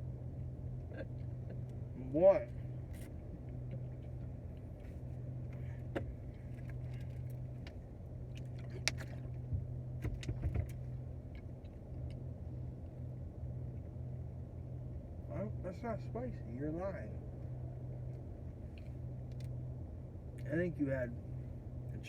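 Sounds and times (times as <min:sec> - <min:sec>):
car engine idling: 0:00.0 - 0:22.0
light clicks and knocks: 0:05.5 - 0:12.2.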